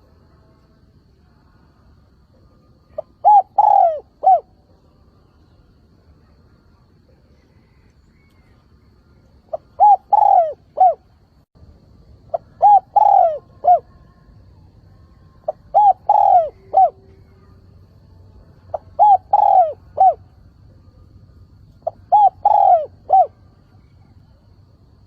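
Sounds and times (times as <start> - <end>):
dove cooing: 2.9 - 4.6, 9.5 - 11.1, 12.3 - 14.1, 15.4 - 17.6, 18.7 - 20.4, 21.8 - 24.4.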